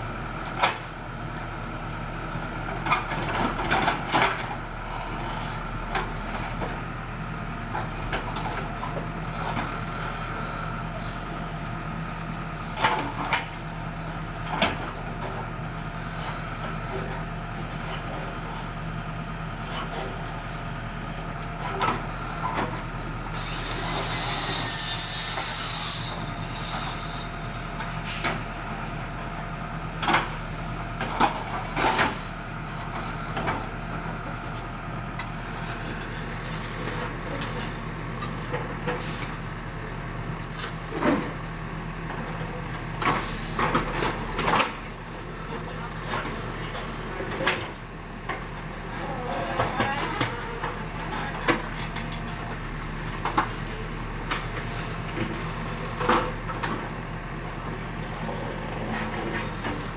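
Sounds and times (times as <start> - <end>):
diesel engine running: 0.0 - 59.9
hiss: 23.3 - 28.3, 31.6 - 32.5, 43.1 - 43.6.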